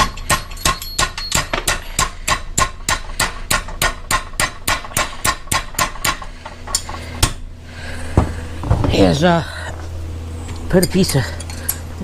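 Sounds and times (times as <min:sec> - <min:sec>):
hammer striking metal rod: 0:00.0 - 0:07.4.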